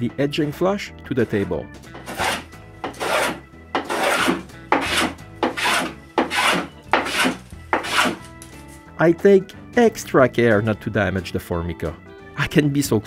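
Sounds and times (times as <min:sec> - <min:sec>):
hand plane rasping on wood: 0:02.0 - 0:08.3.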